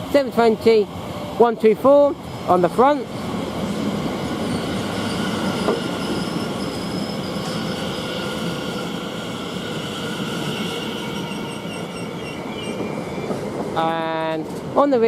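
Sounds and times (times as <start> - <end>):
train wheels rumbling on rail: 0.0 - 15.0
high-pitched squealing: 4.2 - 13.3.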